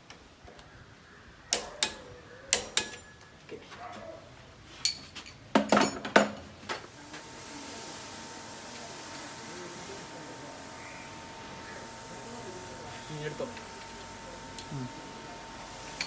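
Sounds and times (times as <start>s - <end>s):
metallic clinks and knocks: 4.8s - 6.4s
steady hiss: 6.7s - 16.0s.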